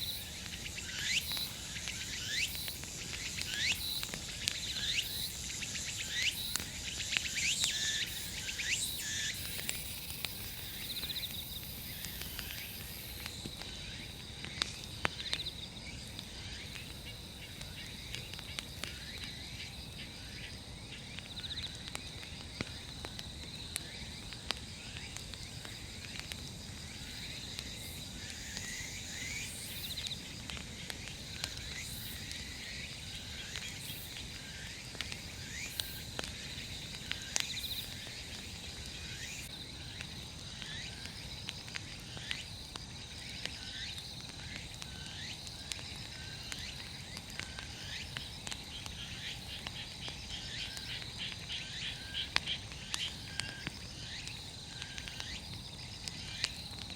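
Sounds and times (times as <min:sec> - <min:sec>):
short insect chirps: 0:00.0 - 0:13.2
bonfire crackling: 0:00.0 - 0:56.9
insects trilling: 0:00.0 - 0:56.9.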